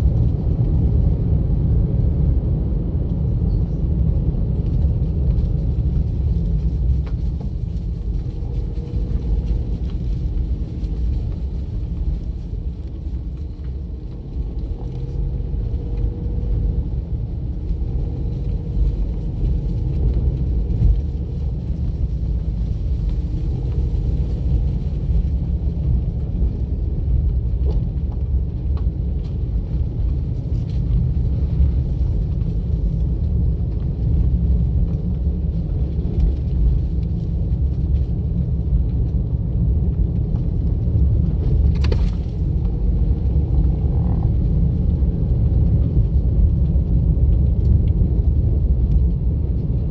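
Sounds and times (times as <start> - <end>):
car engine and tyre noise: 0.0 - 49.9.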